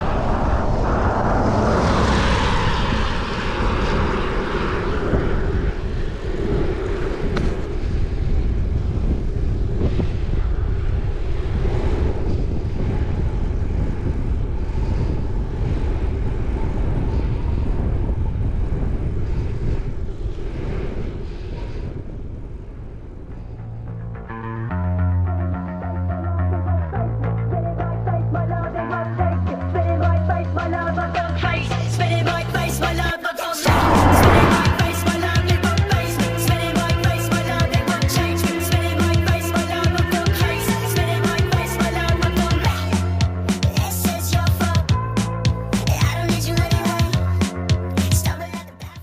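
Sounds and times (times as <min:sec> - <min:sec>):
wind buffeting microphone: 0:00.0 - 0:24.7, 0:33.6 - 0:37.9.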